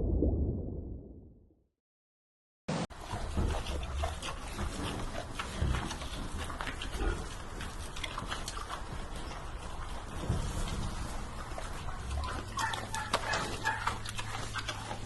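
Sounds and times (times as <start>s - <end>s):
animal noises: 3.0s - 15.0s.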